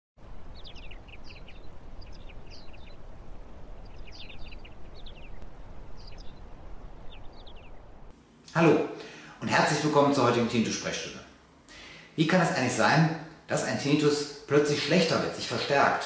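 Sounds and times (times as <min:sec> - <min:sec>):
low background rumble: 0:00.2 - 0:08.4
birds chirping: 0:00.2 - 0:10.5.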